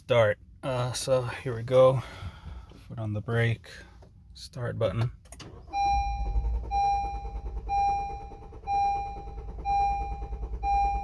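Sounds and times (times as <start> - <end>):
car engine cranking: 4.9 - 11.0
warning chime beeping: 5.7 - 11.0.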